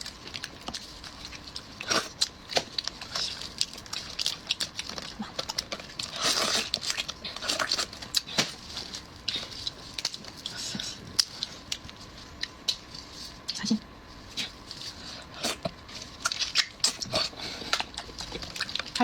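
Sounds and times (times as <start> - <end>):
small wet clicks and crackles: 0.0 - 13.7, 17.7 - 19.0
chewing and lip-smacking: 14.3 - 19.0.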